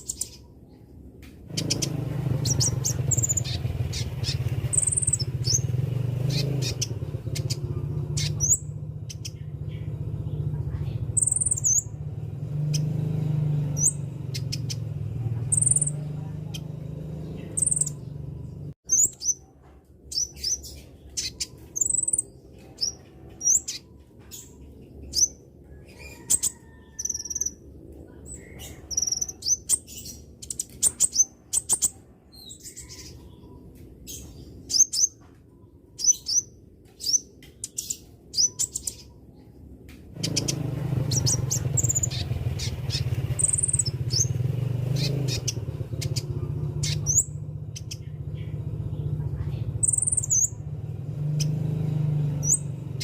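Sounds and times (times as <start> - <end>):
steady low rumble: 0.0 - 12.8, 38.0 - 51.3
bird chirping and tweeting: 0.0 - 53.0.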